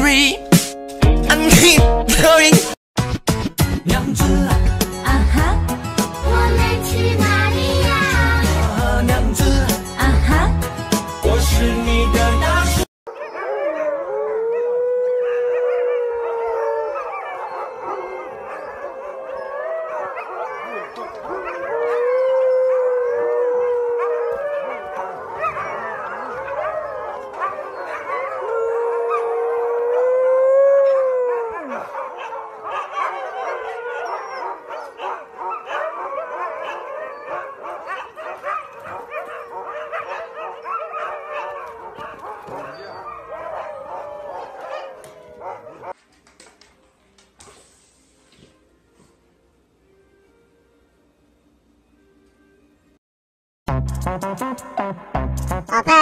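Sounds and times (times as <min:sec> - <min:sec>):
huskies howling in chorus: 0:13.1 - 0:46.0.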